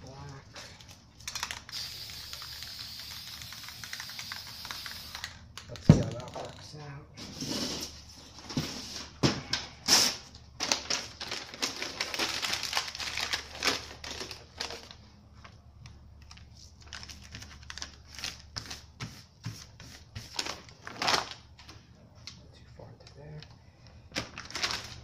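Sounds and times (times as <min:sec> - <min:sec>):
spray-paint can hissing: 0:01.7 - 0:05.2.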